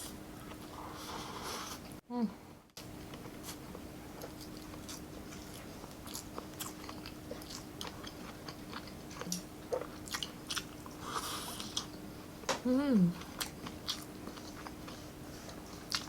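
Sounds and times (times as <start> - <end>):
faint steady hum: 0.0 - 16.0
person chewing food: 3.0 - 12.4, 13.1 - 16.0.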